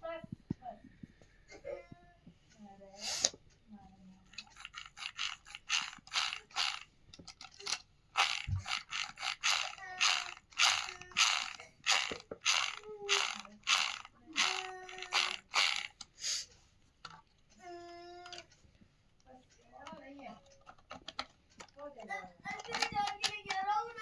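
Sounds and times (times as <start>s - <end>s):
toy car plastic gears ratcheting: 4.3s - 16.1s, 18.0s - 18.5s, 19.8s - 21.8s, 22.5s - 23.8s.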